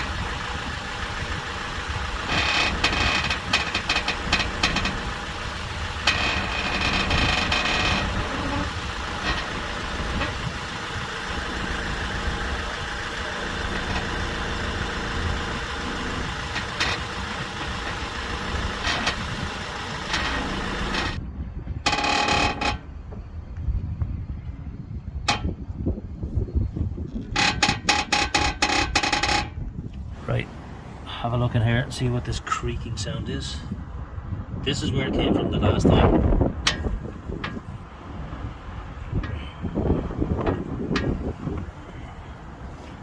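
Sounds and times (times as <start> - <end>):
car engine idling: 0.0 - 23.5
suspension creaking: 0.0 - 23.5, 25.0 - 25.8, 26.9 - 31.0, 35.9 - 43.0.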